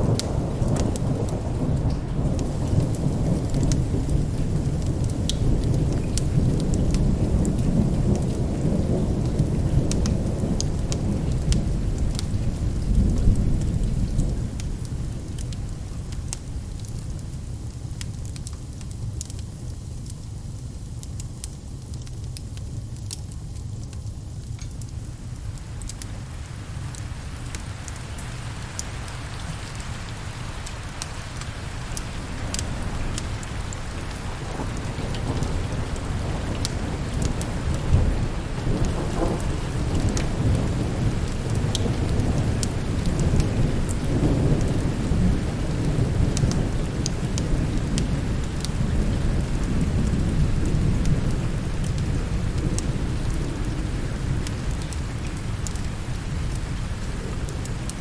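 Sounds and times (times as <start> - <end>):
thunder rolling: 0.0 - 14.8, 27.5 - 54.6
steady rain: 0.0 - 58.0.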